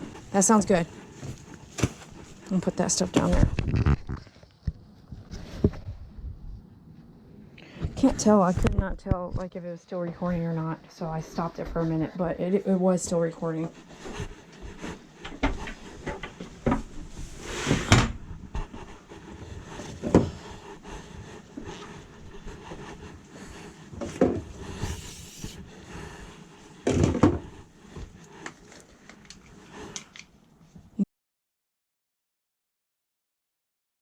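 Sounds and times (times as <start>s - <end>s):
microphone handling noise: 3.0s - 6.6s, 7.8s - 9.5s.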